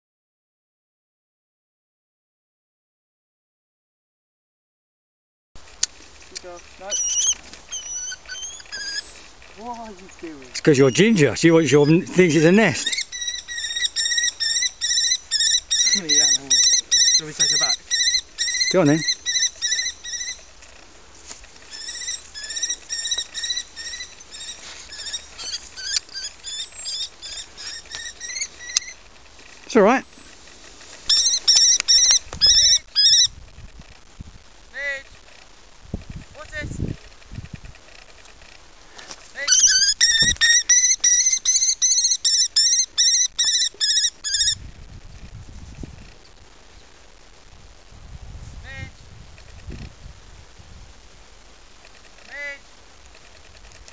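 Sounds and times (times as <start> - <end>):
kestrel calling: 6.4 - 20.6, 21.6 - 29.0, 31.1 - 33.4, 39.4 - 44.6.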